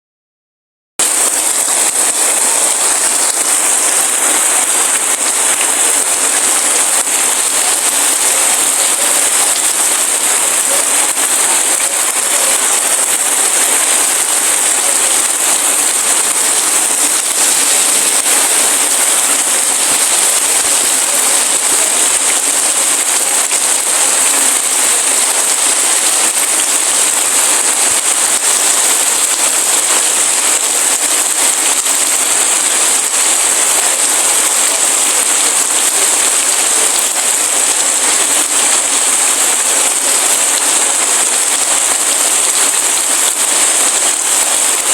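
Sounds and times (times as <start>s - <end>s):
heavy rain falling: 1.0s - 44.9s.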